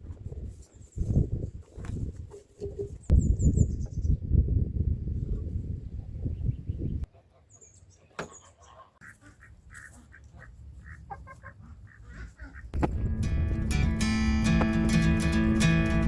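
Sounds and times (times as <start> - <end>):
birds chirping and calling: 2.8 - 4.2, 6.2 - 12.8
low rumble: 12.8 - 16.0.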